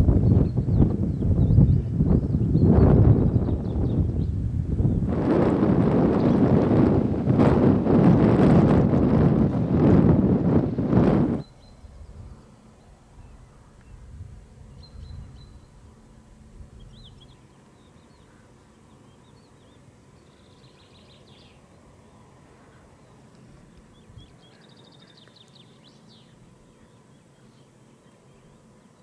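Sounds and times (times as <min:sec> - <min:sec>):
songbirds chirping and trilling: 0:00.0 - 0:06.8, 0:10.6 - 0:29.0
wind rumble on microphone: 0:00.0 - 0:17.9.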